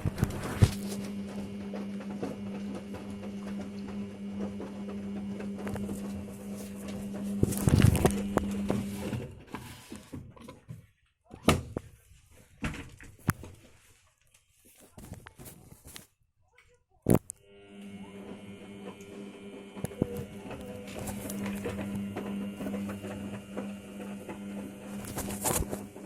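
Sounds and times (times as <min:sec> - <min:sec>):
washing machine humming: 0:00.0 - 0:09.9, 0:17.4 - 0:26.0.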